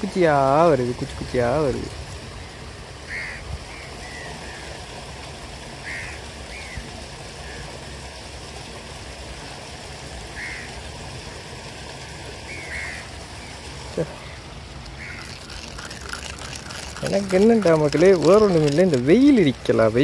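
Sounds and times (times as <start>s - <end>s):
steady background hiss: 0.0s - 20.0s
short bird calls: 3.1s - 4.7s, 12.5s - 15.4s.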